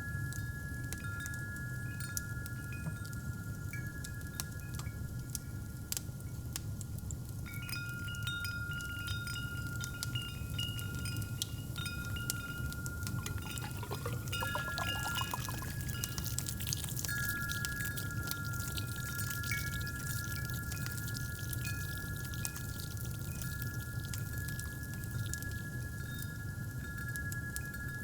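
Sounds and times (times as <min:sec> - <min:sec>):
metal wind chimes ringing: 0:07.5 - 0:18.3
drink pouring into cup: 0:12.3 - 0:25.6
fire crackles: 0:12.4 - 0:27.6.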